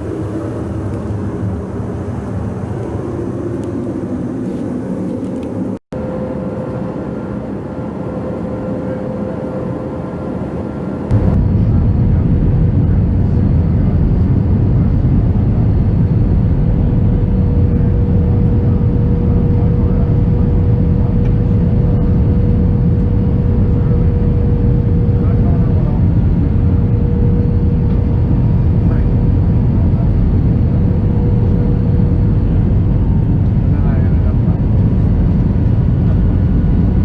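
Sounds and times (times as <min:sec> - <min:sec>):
airplane cabin engine drone: 0:00.0 - 0:37.0.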